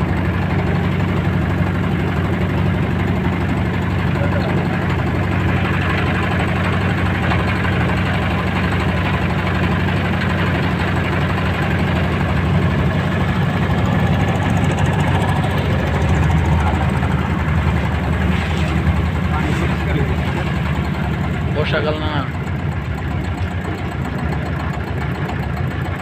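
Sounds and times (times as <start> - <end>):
motorboat engine chugging: 0.0 - 26.0.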